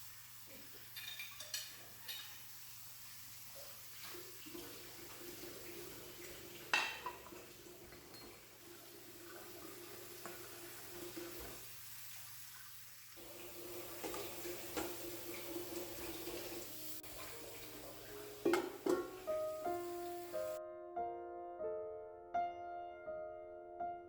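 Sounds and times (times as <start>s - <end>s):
dishes and utensils clinking: 0.5s - 2.5s, 6.7s - 8.5s, 13.8s - 20.6s.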